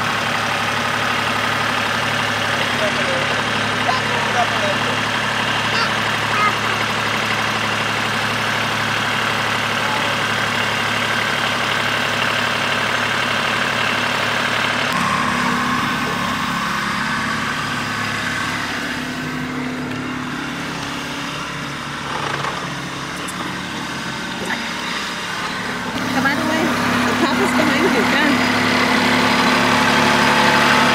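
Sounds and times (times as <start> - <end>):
tractor engine running: 0.0 - 30.9.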